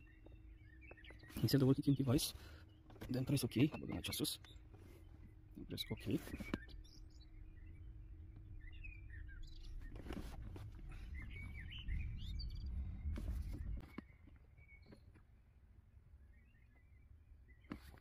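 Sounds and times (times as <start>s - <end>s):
faint bird chirps: 0.0s - 15.5s, 16.1s - 18.0s
low steady rumble: 4.4s - 17.5s.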